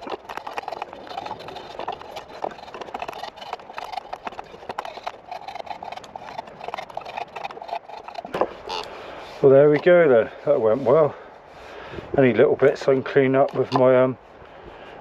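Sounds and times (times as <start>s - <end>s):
draw knife shaving wood: 0.0s - 9.9s.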